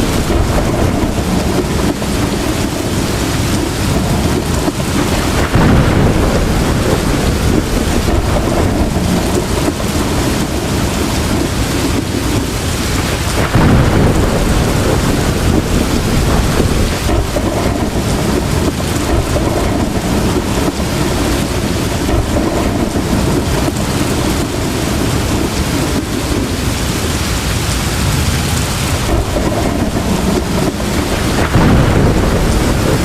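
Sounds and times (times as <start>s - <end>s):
heavy rain pouring: 0.0s - 33.0s
thunder rumbling: 0.0s - 33.0s.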